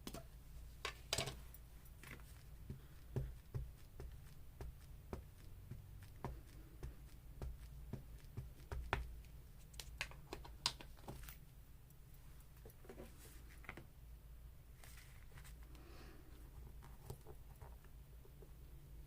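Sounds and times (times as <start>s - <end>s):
rubber stamp tapping on paper: 2.7s - 9.2s.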